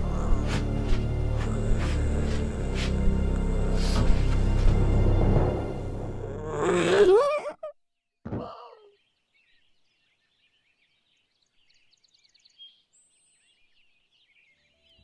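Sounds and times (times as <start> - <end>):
small birds chirping: 8.0 - 15.0.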